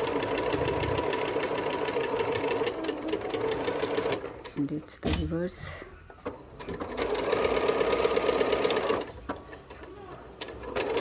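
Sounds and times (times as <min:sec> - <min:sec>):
sewing machine stitching: 0:00.0 - 0:04.7, 0:06.2 - 0:11.0.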